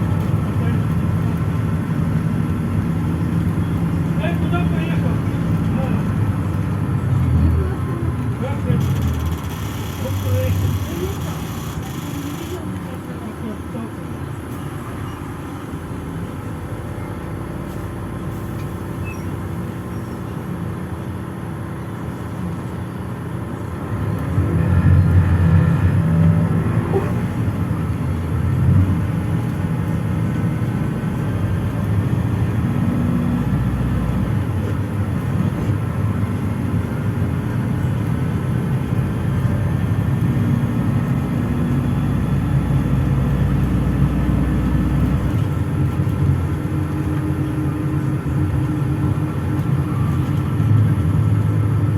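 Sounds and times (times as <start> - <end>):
bus engine and road rumble: 0.0 - 51.9.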